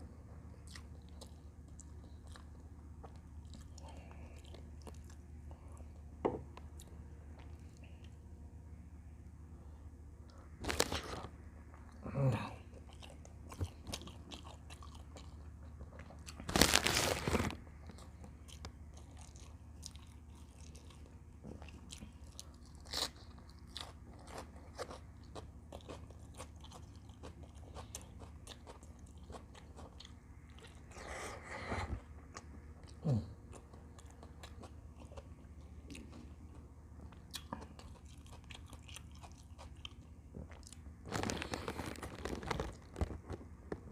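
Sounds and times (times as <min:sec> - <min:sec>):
person chewing and biting: 0:12.7 - 0:31.2, 0:32.2 - 0:43.4.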